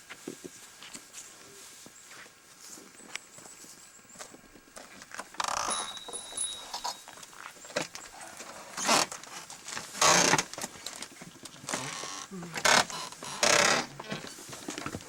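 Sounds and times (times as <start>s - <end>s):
footsteps: 0.0s - 8.6s
handling noises: 0.0s - 15.0s
rustling and scraping bursts: 0.0s - 15.0s
metallic jingle: 5.6s - 7.1s.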